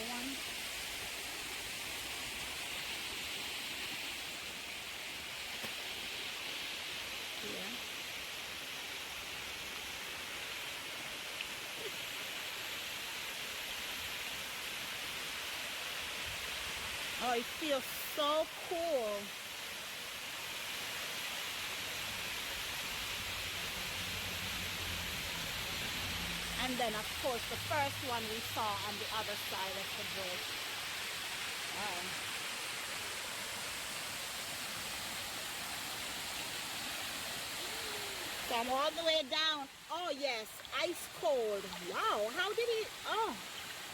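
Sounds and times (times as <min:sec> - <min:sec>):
waterfall rushing: 0:21.6 - 0:43.9.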